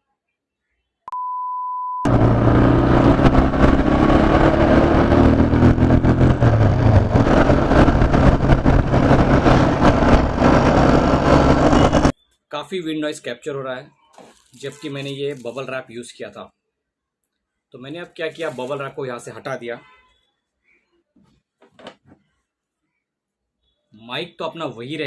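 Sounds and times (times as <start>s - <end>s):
steady high beep: 1.1s - 2.1s, 10.7s - 12.1s
motorcycle engine running: 2.1s - 12.1s
wind noise on microphone: 2.1s - 12.1s.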